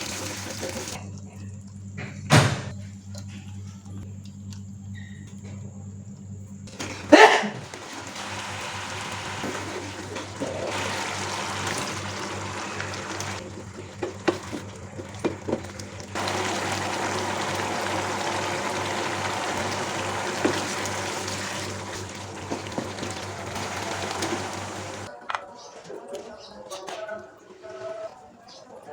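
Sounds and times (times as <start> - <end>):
chicken skin sizzling in oil: 6.9 - 15.2, 15.8 - 25.1.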